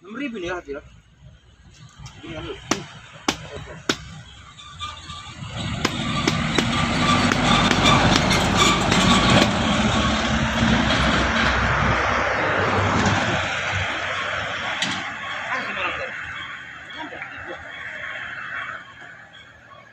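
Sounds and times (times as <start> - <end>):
truck engine running: 1.4 - 16.7.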